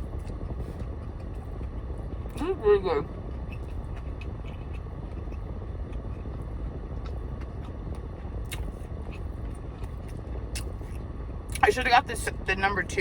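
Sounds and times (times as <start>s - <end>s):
air conditioning running: 0.0s - 13.0s
chewing clicks: 3.1s - 11.6s.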